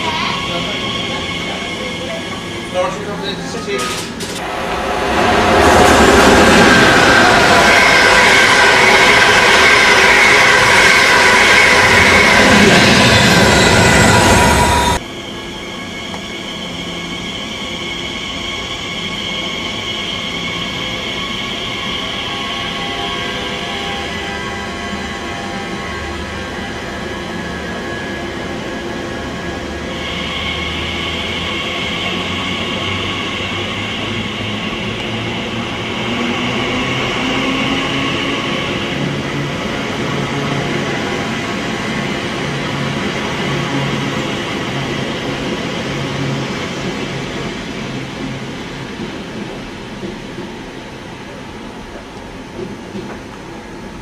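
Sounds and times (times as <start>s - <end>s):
high-pitched wheel squeal: 0.0s - 3.0s, 4.5s - 28.8s
train wheels rumbling on track: 0.0s - 54.0s.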